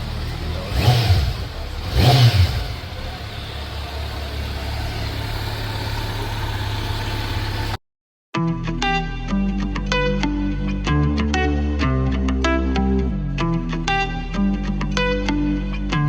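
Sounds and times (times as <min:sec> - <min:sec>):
motorcycle engine revving and idling: 0:00.0 - 0:07.8.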